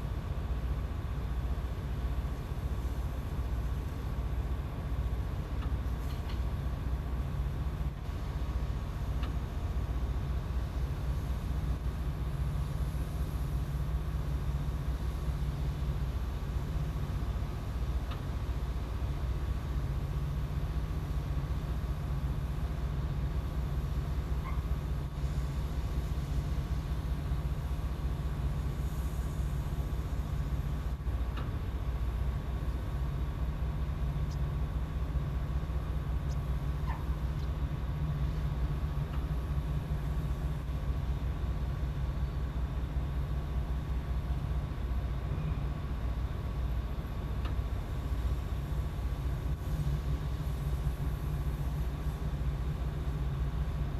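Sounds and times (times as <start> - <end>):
boat engine drone: 0.0 - 53.9
faint steady whine: 0.0 - 53.9.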